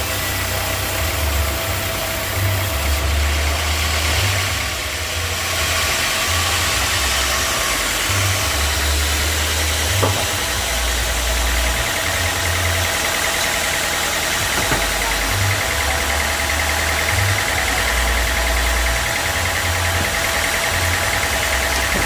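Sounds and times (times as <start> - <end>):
sawmill machinery drone: 0.0 - 22.0
sharp knock: 10.0 - 10.4.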